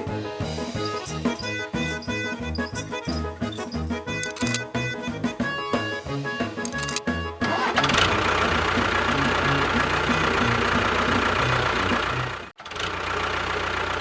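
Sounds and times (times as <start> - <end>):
engine knocking clatter: 6.7 - 14.0.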